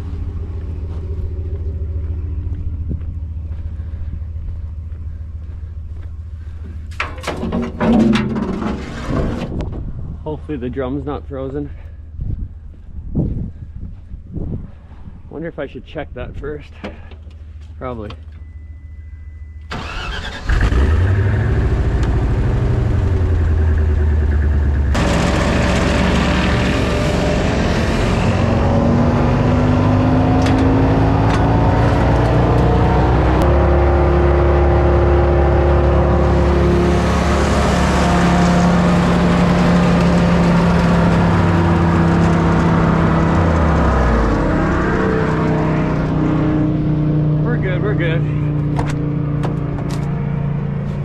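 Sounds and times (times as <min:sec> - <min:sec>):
wood chipper engine revving: 0:19.7 - 0:50.1.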